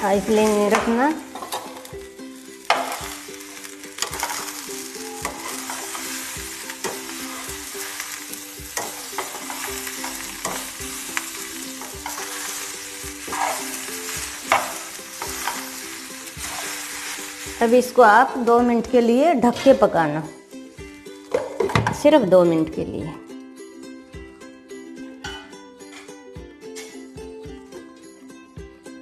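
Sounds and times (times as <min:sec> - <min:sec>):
food sizzling in a pan: 0:00.0 - 0:21.7
metal spatula scraping pan: 0:00.4 - 0:01.9, 0:02.6 - 0:10.8, 0:11.8 - 0:17.3.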